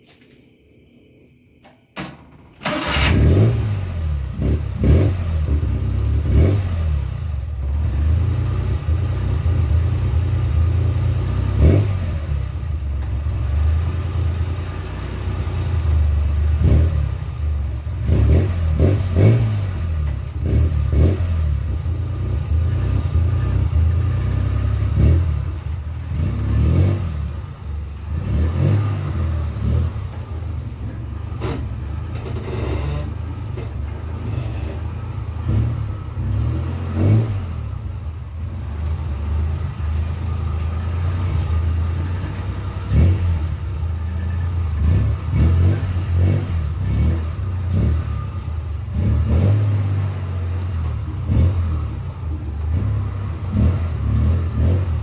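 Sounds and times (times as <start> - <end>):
knocks and clatter: 1.6 - 2.6, 30.0 - 35.7
vehicle engine running: 2.6 - 55.0.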